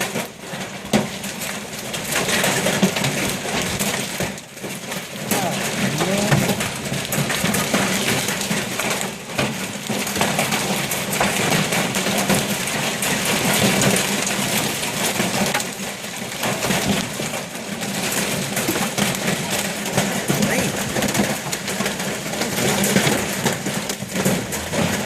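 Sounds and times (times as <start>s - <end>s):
hail pelting hard surfaces: 0.0s - 25.0s.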